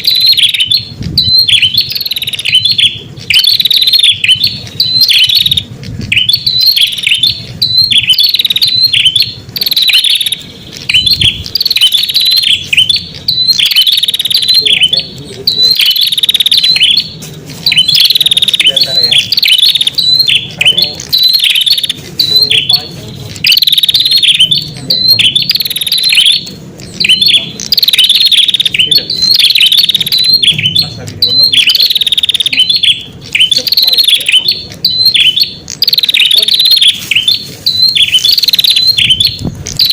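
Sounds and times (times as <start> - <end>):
bird chirping rapidly: 0.0 - 39.9.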